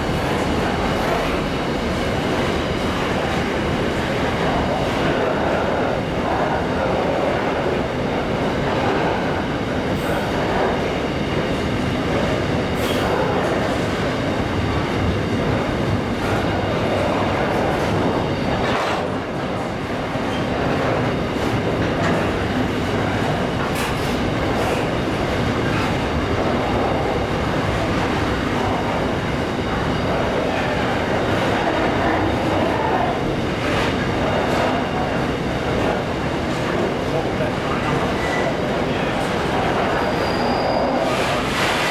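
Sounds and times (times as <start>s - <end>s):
train wheels rumbling on rails: 0.0s - 41.9s.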